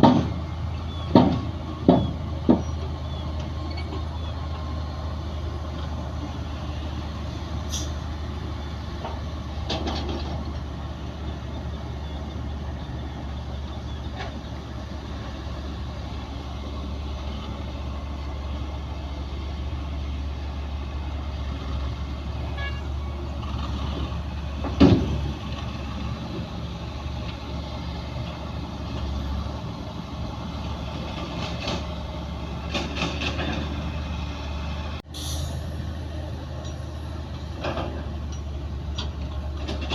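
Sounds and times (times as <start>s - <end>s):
knocks and loud clank: 0.0s - 0.4s, 1.1s - 2.7s, 24.6s - 25.3s
heavy diesel machinery drone: 0.0s - 39.9s.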